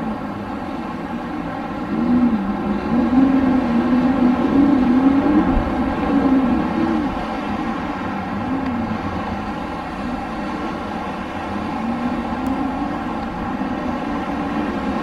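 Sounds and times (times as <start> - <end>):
wind whistling howl: 0.0 - 15.0.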